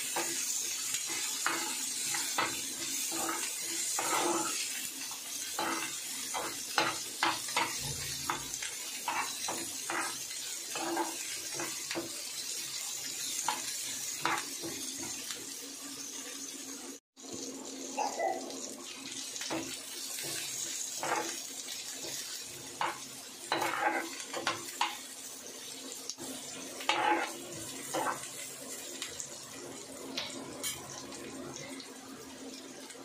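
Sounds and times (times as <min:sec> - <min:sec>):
spatula scraping a pan: 0:00.0 - 0:12.0, 0:19.5 - 0:25.0, 0:26.8 - 0:28.3
onions sizzling in oil: 0:00.0 - 0:33.0.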